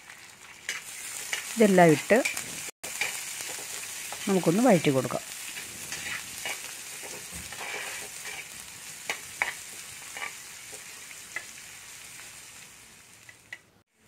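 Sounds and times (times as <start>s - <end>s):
vegetables sizzling in oil: 0.0s - 14.0s
spatula scraping and tapping pan: 5.5s - 11.5s.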